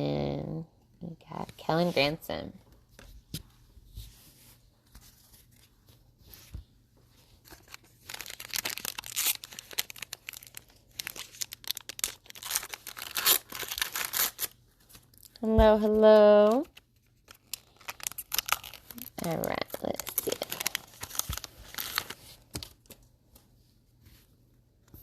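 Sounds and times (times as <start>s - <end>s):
wrapper tearing and crinkling: 7.4s - 15.4s, 16.4s - 23.0s.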